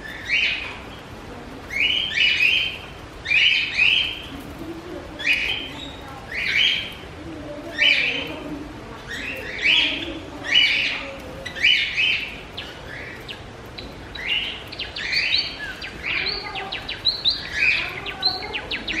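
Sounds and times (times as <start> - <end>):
cage birds chirping: 0.0 - 19.0.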